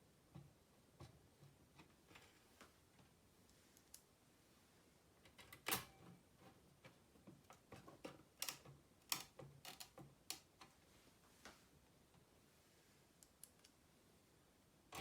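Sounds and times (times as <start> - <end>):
clicks and knocks of small parts: 7.3 - 10.7.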